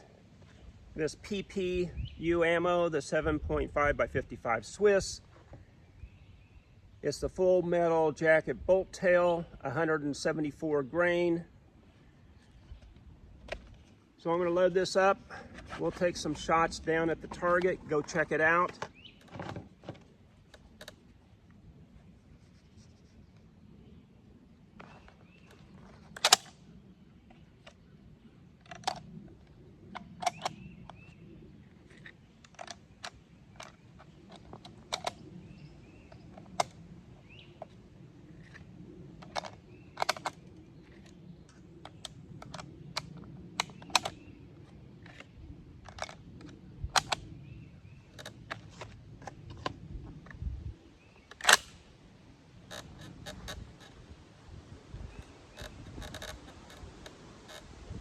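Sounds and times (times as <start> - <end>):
rifle action metallic clicks: 26.2 - 26.6, 30.0 - 31.0, 34.3 - 35.3, 39.2 - 41.2, 41.9 - 44.3, 51.3 - 51.8
sharp rifle bolt snaps: 26.2 - 26.6, 30.0 - 31.0, 51.3 - 51.8.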